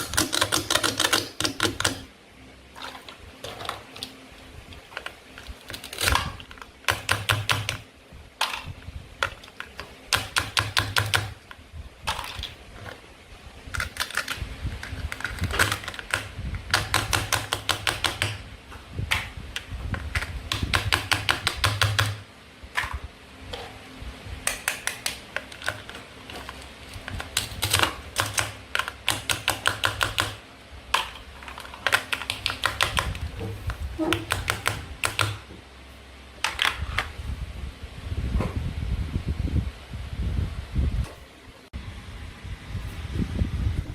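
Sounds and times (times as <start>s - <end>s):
plastic toy pieces clicking: 0.0s - 2.1s, 13.7s - 18.4s, 31.0s - 33.2s.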